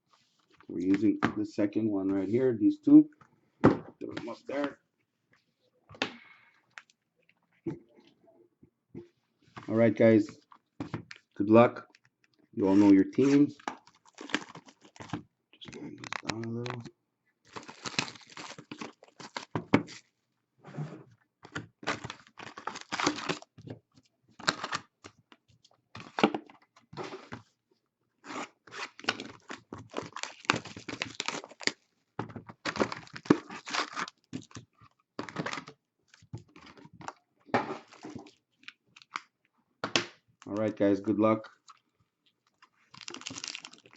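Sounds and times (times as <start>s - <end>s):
wrapper tearing and crumpling: 12.7s - 15.1s, 15.9s - 16.5s, 17.5s - 20.0s, 21.9s - 23.5s, 28.2s - 31.8s, 32.6s - 34.6s, 42.5s - 43.9s.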